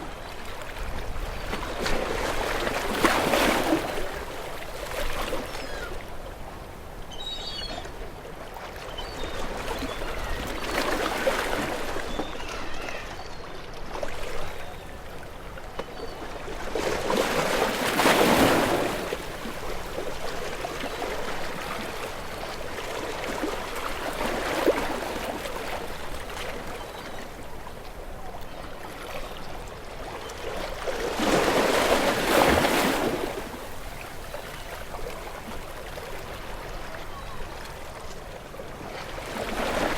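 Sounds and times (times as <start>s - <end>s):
ocean waves washing ashore: 30.2s - 39.9s.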